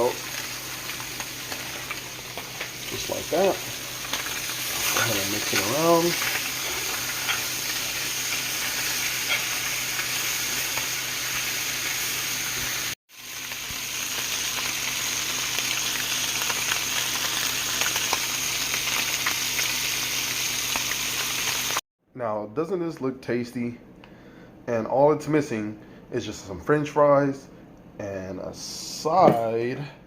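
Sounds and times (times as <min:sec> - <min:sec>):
fish sizzling in a pan: 0:00.0 - 0:21.8.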